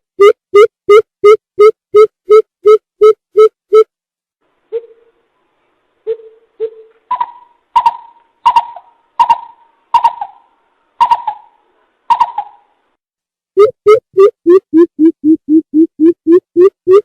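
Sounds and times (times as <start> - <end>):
bird giving hollow hoots: 6.1 - 12.6.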